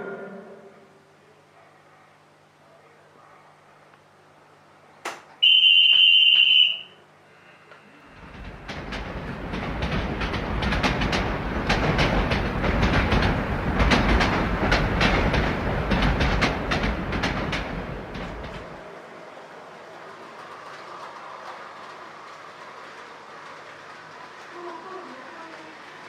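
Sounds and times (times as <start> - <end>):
short high whistle tone: 5.4 - 7.0
model train running on track: 5.4 - 26.0.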